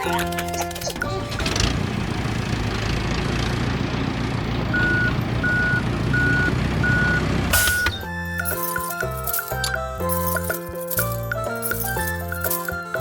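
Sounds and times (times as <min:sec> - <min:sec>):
light music: 0:00.0 - 0:01.8, 0:07.6 - 0:13.0
truck engine running: 0:00.0 - 0:13.0
reversing alarm beeping: 0:04.7 - 0:08.0.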